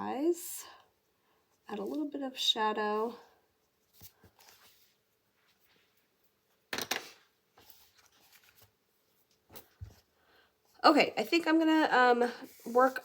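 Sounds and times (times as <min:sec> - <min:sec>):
colored pencil scratching paper: 0:12.4 - 0:13.0.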